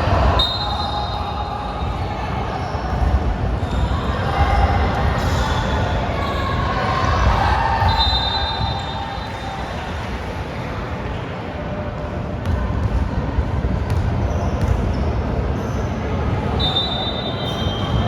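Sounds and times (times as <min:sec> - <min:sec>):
ball bouncing on gym floor: 0:13.8 - 0:14.9.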